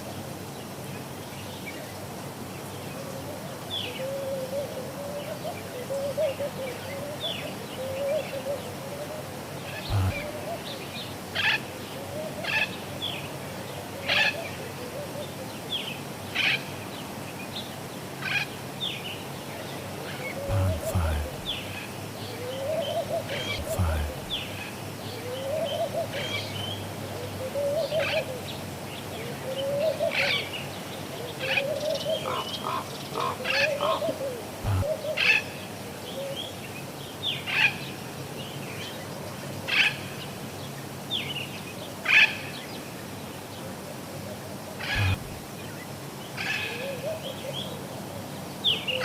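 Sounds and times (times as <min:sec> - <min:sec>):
harsh parrot calls: 0:09.9 - 0:10.4, 0:44.9 - 0:45.5
low warbling coo: 0:09.9 - 0:10.6, 0:20.4 - 0:28.5, 0:45.0 - 0:45.4.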